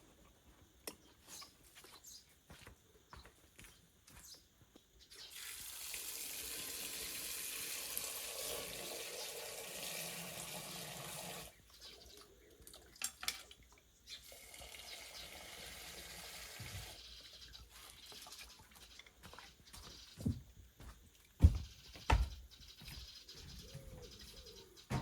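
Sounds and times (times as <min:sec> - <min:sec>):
tap water running into sink: 0:05.4 - 0:11.5.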